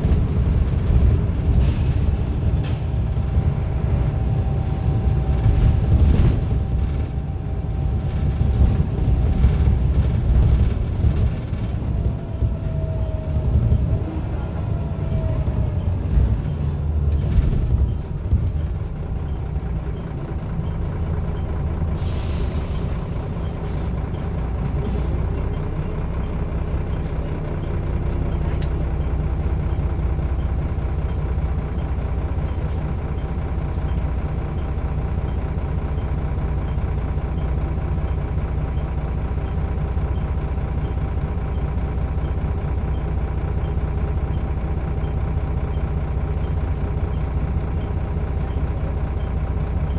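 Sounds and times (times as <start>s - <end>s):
bus engine droning: 0.0s - 49.9s
air brake hiss: 1.6s - 3.0s, 22.0s - 24.0s.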